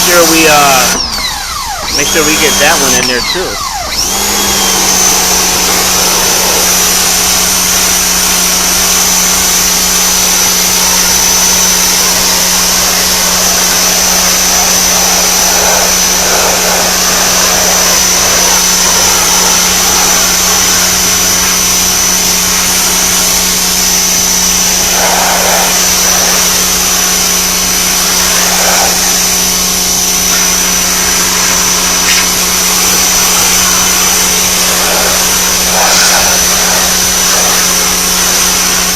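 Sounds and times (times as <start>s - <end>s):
pressure washer whining: 0.0s - 38.9s
water spraying onto wood: 11.6s - 20.3s, 24.8s - 26.8s, 28.2s - 29.2s, 33.3s - 38.6s.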